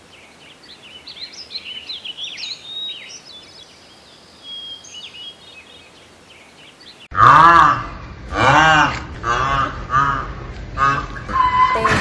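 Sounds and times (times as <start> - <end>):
faint steady outdoor hiss: 0.0 - 7.1
small birds chirping: 0.0 - 7.1.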